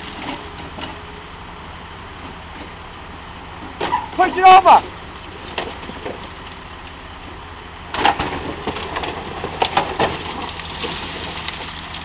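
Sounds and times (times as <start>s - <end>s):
excavator diesel engine running: 0.0s - 12.0s
metal cracking and crunching: 7.9s - 12.0s.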